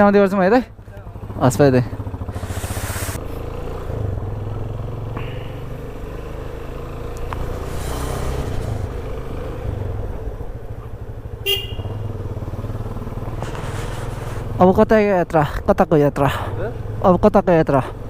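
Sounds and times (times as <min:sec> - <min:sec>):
motorcycle engine running: 0:00.0 - 0:18.0
street traffic: 0:00.0 - 0:18.0
short horn toot: 0:11.5 - 0:12.0.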